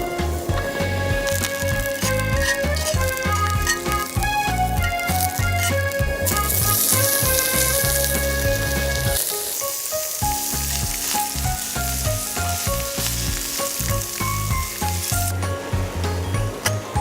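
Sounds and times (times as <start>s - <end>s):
background music with bass beat: 0.0s - 9.2s, 10.2s - 17.0s
food sizzling in a pan: 9.2s - 15.4s.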